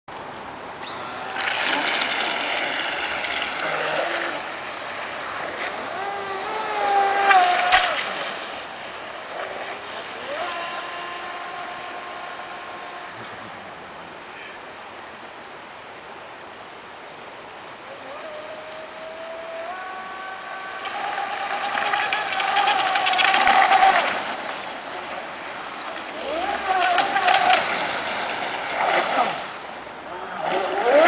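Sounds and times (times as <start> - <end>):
rc boat motor whining: 0.8 - 8.0, 9.5 - 13.4, 18.0 - 24.3, 26.0 - 31.0.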